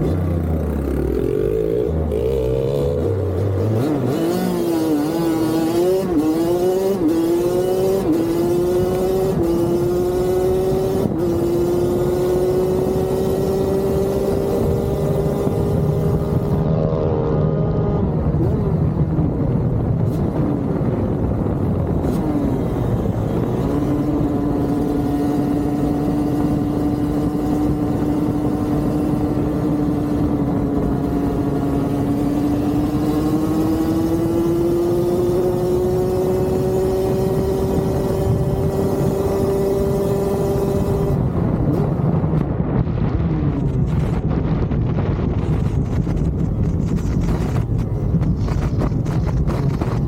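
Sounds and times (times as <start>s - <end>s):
dirt bike engine running: 44.8s - 50.0s.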